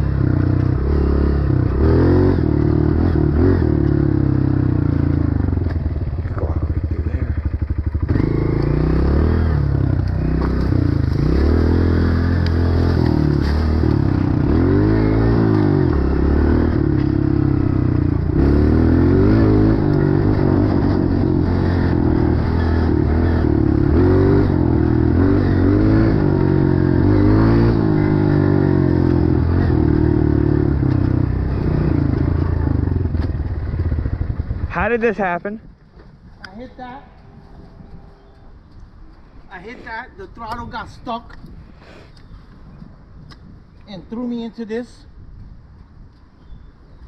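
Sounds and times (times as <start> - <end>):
dirt bike engine revving: 0.0 - 35.3.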